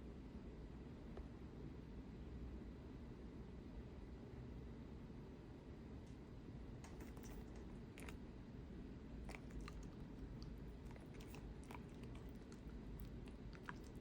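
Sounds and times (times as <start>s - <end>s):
low background hum: 0.0s - 14.0s
dog chewing food: 6.9s - 8.3s, 9.1s - 14.0s.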